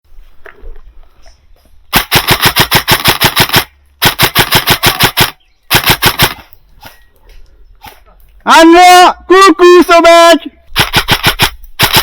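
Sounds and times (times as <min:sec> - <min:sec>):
airsoft gun firing rapidly: 0:01.9 - 0:06.4, 0:10.8 - 0:12.0.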